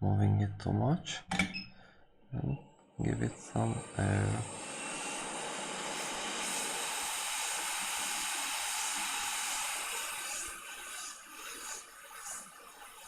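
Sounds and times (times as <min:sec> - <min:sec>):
hot air station hissing: 0:03.0 - 0:12.3.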